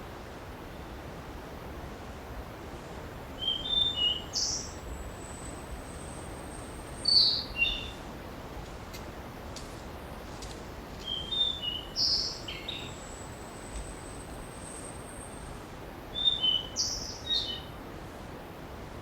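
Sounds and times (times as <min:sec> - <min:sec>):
background hiss: 0:00.0 - 0:19.0
songbird chirping: 0:03.4 - 0:08.0, 0:11.0 - 0:15.5, 0:16.2 - 0:17.7.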